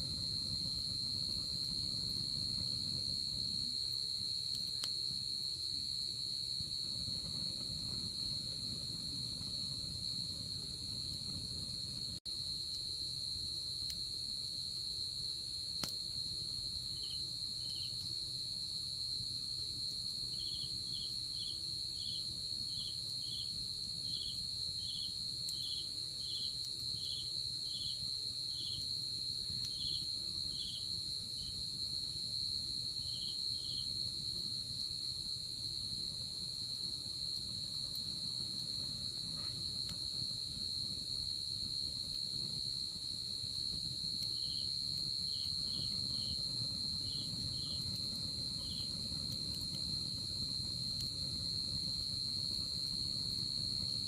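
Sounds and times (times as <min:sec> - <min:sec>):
campfire crackling rustle: 0:00.0 - 0:54.0
insect high-pitched trill: 0:33.0 - 0:33.9, 0:42.2 - 0:51.0.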